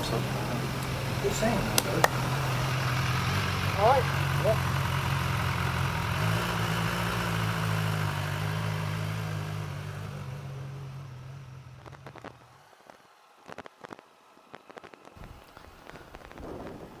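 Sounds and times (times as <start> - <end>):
motorcycle engine running: 0.0 - 12.5.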